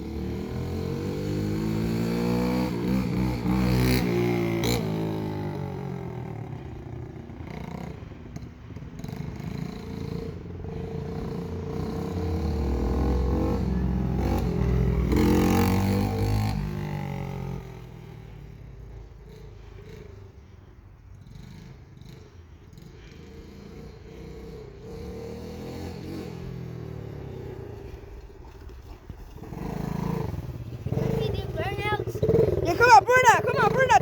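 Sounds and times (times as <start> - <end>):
mini bike motor revving: 29.3 - 34.0.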